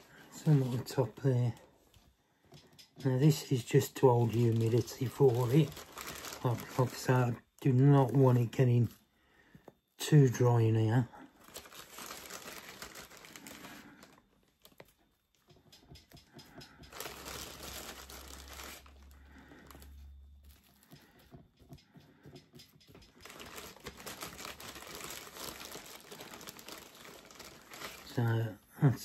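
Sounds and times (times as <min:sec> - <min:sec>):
moss rustling and crinkling: 0:00.0 - 0:01.8, 0:03.3 - 0:08.8, 0:11.3 - 0:15.0, 0:16.9 - 0:21.2, 0:23.2 - 0:28.5.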